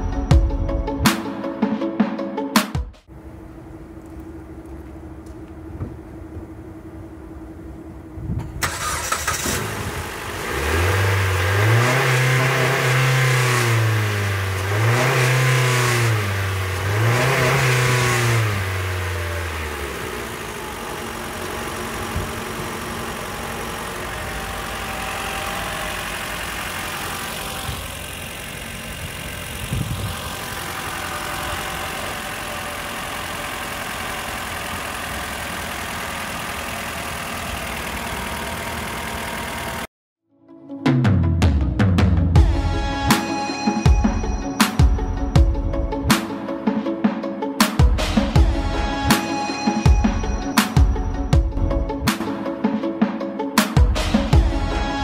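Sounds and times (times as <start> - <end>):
car engine revving and idling: 3.1 - 39.9.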